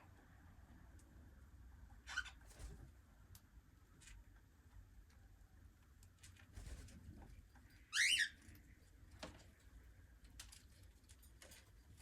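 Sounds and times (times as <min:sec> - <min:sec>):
cockatiel chirp: 0:07.9 - 0:08.4.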